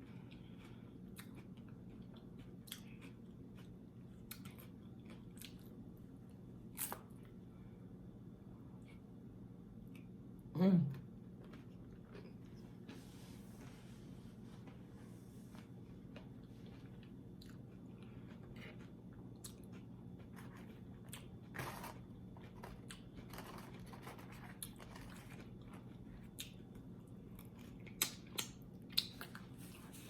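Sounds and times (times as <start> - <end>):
person chewing crunchy food: 0.0 - 5.9, 11.3 - 13.1, 15.5 - 30.0
faint steady hum: 0.0 - 30.0.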